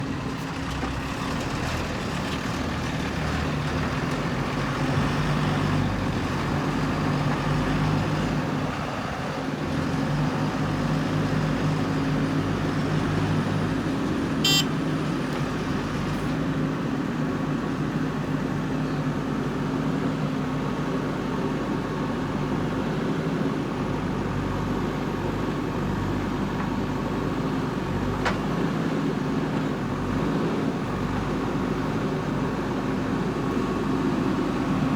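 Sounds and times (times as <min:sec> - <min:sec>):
backhoe diesel engine running: 0:00.0 - 0:34.9.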